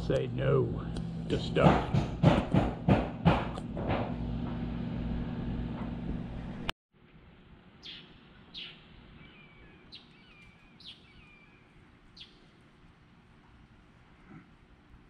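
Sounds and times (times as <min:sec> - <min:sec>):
sharp falling bird chirps: 0:07.8 - 0:12.4
faint bird warbling song: 0:07.8 - 0:12.7.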